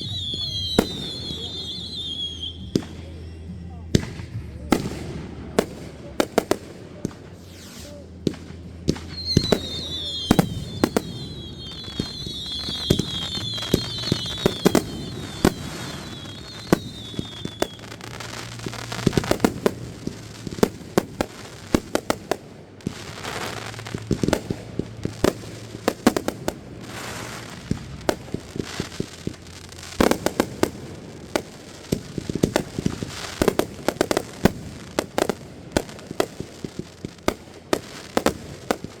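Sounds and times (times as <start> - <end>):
falling firework whistles: 0.0 - 3.0, 7.3 - 22.0
fireworks banging: 0.0 - 39.0.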